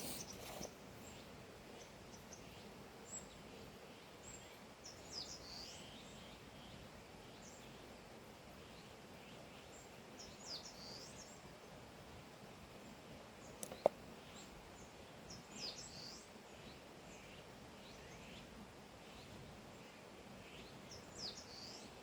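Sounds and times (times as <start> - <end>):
birds chirping: 0.0 - 2.4, 13.4 - 14.5
faint outdoor hiss: 0.0 - 22.0.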